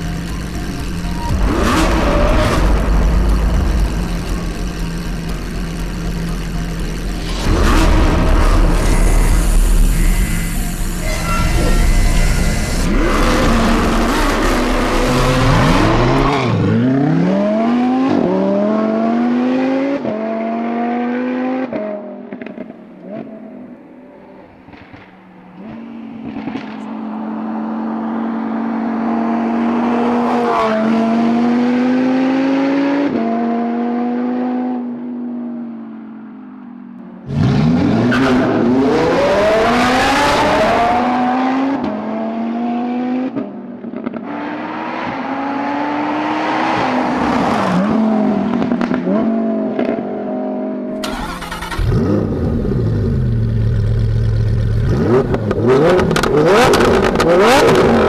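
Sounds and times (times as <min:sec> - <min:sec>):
sports car engine accelerating: 0:00.0 - 0:23.7.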